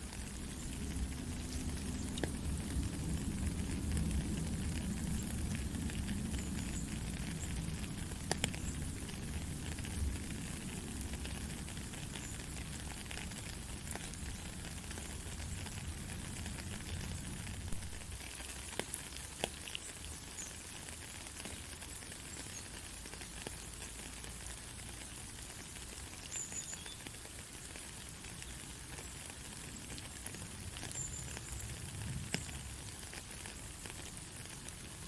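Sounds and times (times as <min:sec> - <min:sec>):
heavy rain falling: 0:00.0 - 0:35.0
low thunder rumble: 0:00.3 - 0:10.4
sharp drip clicks: 0:00.9 - 0:02.8.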